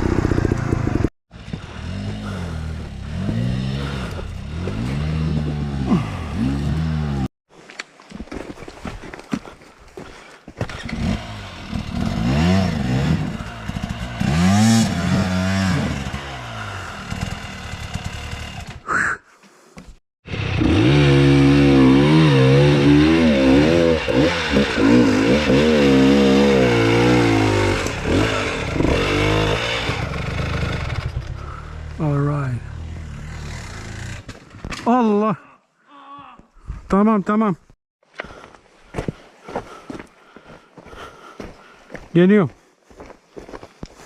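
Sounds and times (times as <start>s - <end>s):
dirt bike engine revving: 0.0s - 7.3s, 10.7s - 18.8s, 20.3s - 34.3s.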